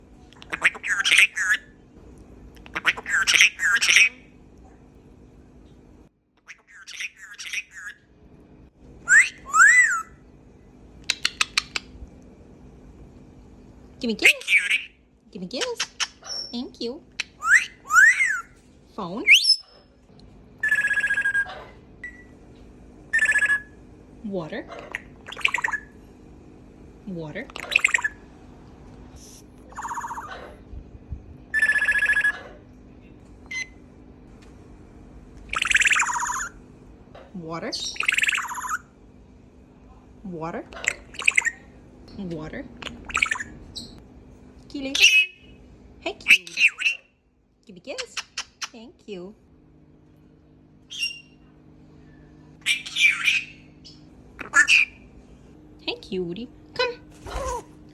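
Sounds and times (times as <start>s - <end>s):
parrot making buzzy warbling calls: 0.4s - 1.8s, 2.6s - 4.3s, 23.1s - 23.8s, 29.7s - 30.5s, 46.2s - 47.1s, 52.6s - 55.1s
parrot squawking chatter: 0.4s - 1.8s, 2.6s - 4.3s, 6.4s - 8.0s, 14.2s - 15.0s, 15.6s - 18.6s, 20.6s - 21.8s, 23.1s - 23.8s, 24.7s - 25.9s, 27.5s - 28.2s, 29.7s - 30.6s, 31.5s - 32.6s, 35.5s - 36.6s, 37.8s - 38.9s, 40.7s - 41.7s, 42.8s - 44.0s, 44.9s - 45.5s, 46.2s - 47.1s, 52.6s - 55.1s
parrot whistled notes: 9.1s - 10.1s.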